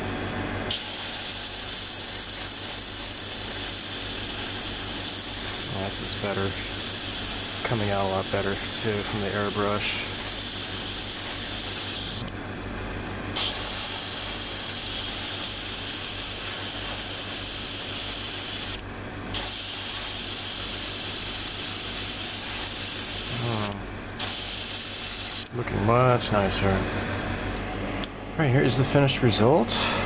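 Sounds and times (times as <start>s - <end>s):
airbrush spraying hiss: 0.7s - 12.3s, 13.4s - 25.5s.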